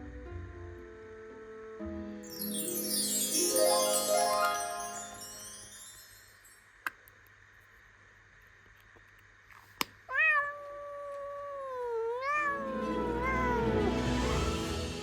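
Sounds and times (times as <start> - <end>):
music: 0.0 - 6.6, 12.5 - 15.0
cat meowing: 10.1 - 13.7.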